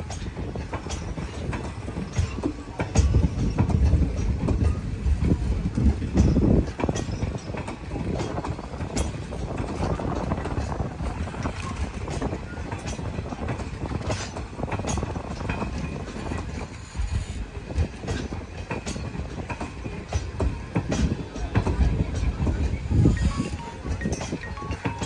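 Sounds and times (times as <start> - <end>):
train rumbling past: 0.0 - 25.0
train wheels clicking over rail joints: 0.0 - 25.0.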